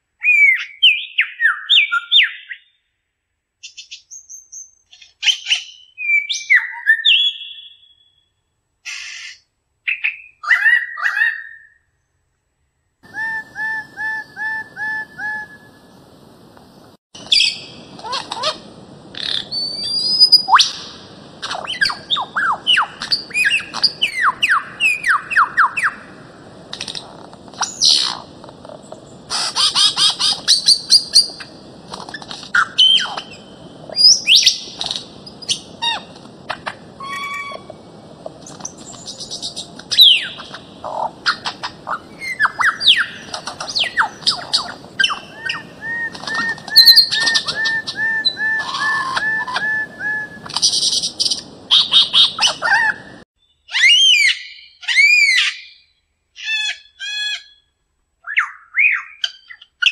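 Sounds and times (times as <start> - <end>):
whistled bird notes: 0.2 - 2.8, 3.6 - 8.3, 13.0 - 15.9, 17.2 - 18.6, 19.2 - 26.1, 32.5 - 36.1, 37.0 - 37.8, 38.4 - 57.7
birds chirping: 13.0 - 55.8
birds squawking: 17.2 - 26.1, 26.9 - 37.8, 38.6 - 53.2.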